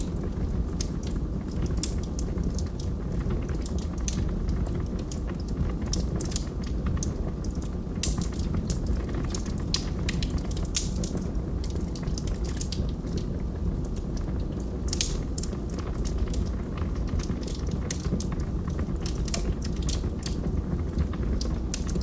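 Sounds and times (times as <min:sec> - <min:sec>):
fire rumbling: 0:00.0 - 0:22.0
wood popping and crackling: 0:00.0 - 0:22.0.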